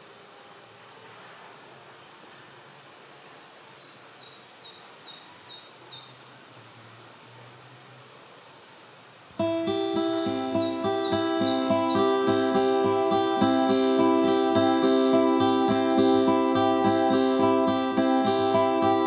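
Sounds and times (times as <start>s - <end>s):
faint outdoor background: 0.0s - 19.0s
songbird singing: 1.6s - 7.2s, 7.9s - 19.0s
acoustic guitar music: 9.4s - 19.0s.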